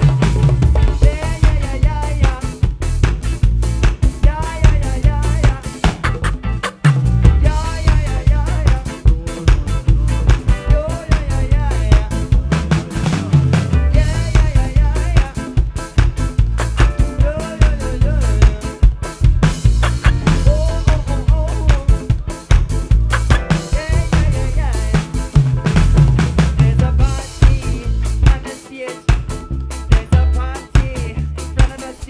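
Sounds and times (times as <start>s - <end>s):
deep bass line: 0.0s - 28.4s, 29.2s - 31.7s
drum kit beat: 0.0s - 32.0s
live band jamming: 0.0s - 32.0s
wavering lead melody: 5.8s - 7.8s.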